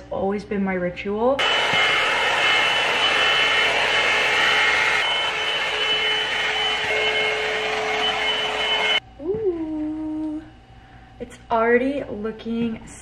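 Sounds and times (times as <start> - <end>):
hair dryer blowing air: 1.4 - 9.0
hair dryer motor whine: 1.4 - 9.0.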